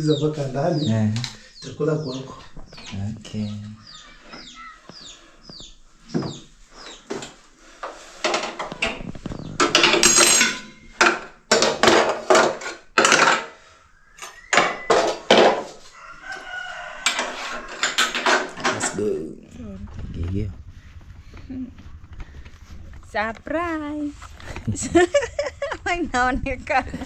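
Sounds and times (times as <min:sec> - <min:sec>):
scraping and rustling: 0:05.9 - 0:13.7, 0:14.3 - 0:19.2, 0:19.8 - 0:25.8
household objects clattering: 0:06.1 - 0:15.9, 0:17.0 - 0:19.2.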